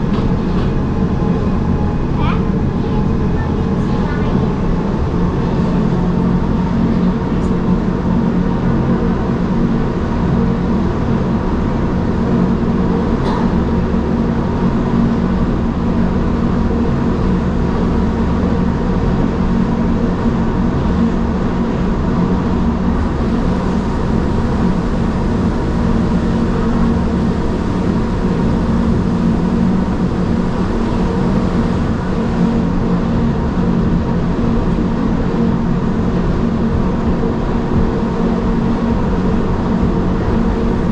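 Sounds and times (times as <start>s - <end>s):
low hum: 0.0s - 40.9s
train wheels rumbling: 0.0s - 40.9s
faint high whine: 22.8s - 34.0s.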